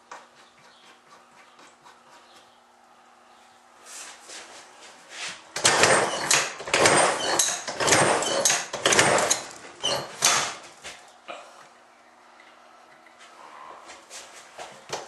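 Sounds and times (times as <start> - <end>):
clattering and scraping: 5.6 - 10.8.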